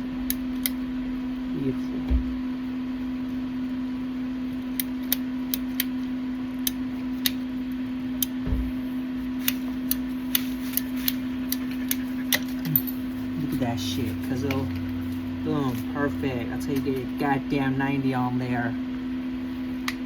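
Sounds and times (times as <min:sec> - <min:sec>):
low mechanical hum: 0:00.0 - 0:20.0
dull thumps: 0:08.4 - 0:08.9.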